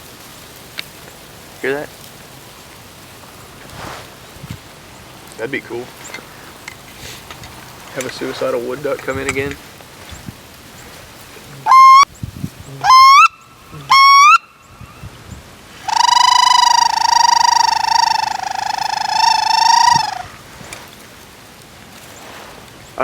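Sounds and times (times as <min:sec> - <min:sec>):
waterfowl call squeals: 0:10.9 - 0:12.1, 0:12.7 - 0:14.9, 0:15.7 - 0:20.9.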